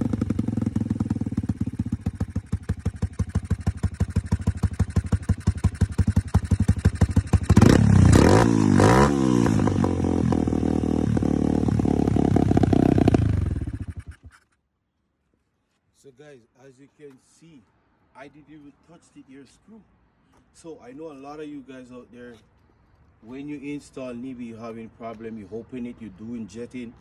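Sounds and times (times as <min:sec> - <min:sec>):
dirt bike engine idling and revving: 0:00.0 - 0:14.5.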